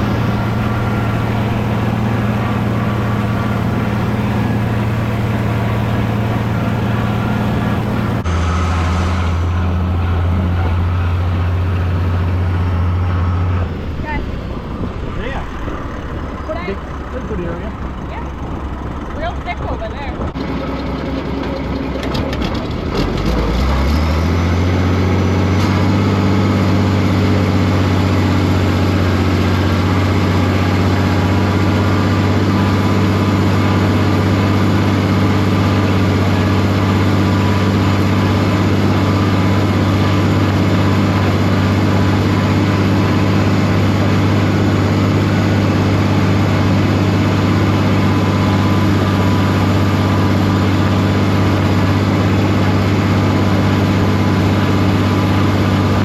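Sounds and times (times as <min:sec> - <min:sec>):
tractor engine revving: 0:00.0 - 0:56.0.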